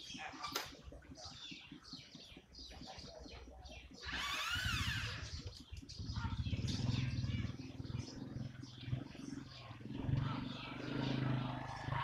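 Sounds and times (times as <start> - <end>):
small birds chirping: 0.0 - 12.0
loud rising and falling bird call: 4.0 - 5.3
engine drone: 6.0 - 12.0.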